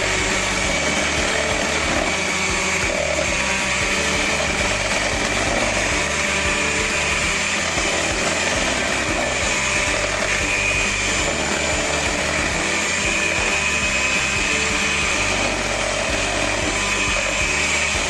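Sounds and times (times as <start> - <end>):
electric beater beating eggs: 0.0 - 18.0.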